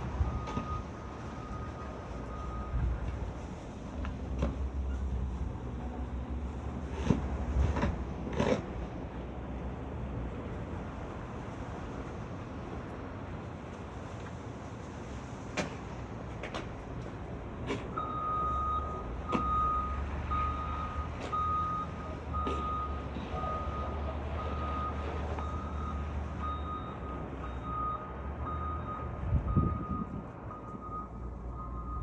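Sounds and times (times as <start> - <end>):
engine rumble: 0.0 - 32.0
reversing alarm beeping: 0.2 - 2.9, 17.9 - 32.0.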